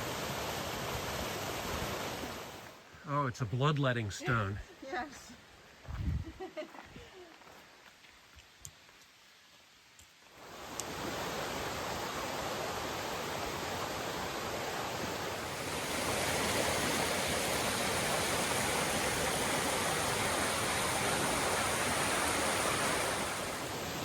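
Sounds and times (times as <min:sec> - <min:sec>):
river water rushing over rocks: 0:10.4 - 0:24.0.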